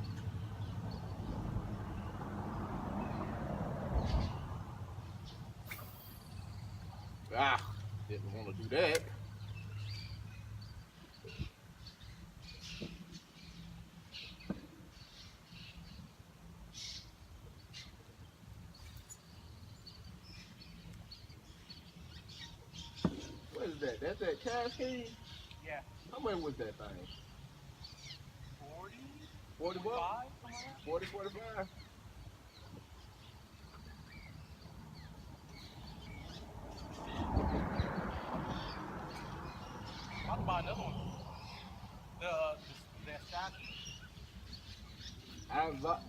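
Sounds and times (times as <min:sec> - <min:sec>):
bird chirps: 0:05.1 - 0:16.1, 0:18.7 - 0:29.8
faint bird chirps: 0:05.3 - 0:07.8
sharp click: 0:08.9 - 0:09.1
wind rumble on microphone: 0:35.8 - 0:42.1.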